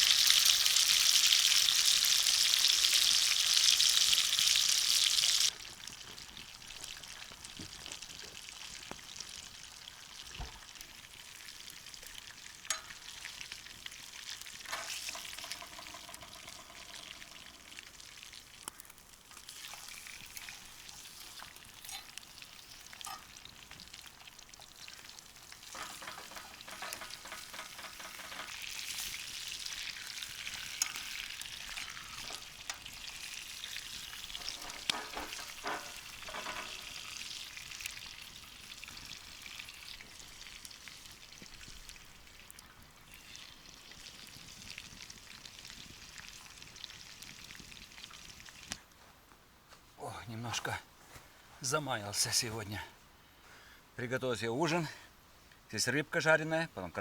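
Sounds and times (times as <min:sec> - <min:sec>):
food sizzling in frying pan: 0:00.0 - 0:48.8
scraping in pan: 0:14.5 - 0:17.9, 0:19.3 - 0:23.4, 0:25.5 - 0:37.4.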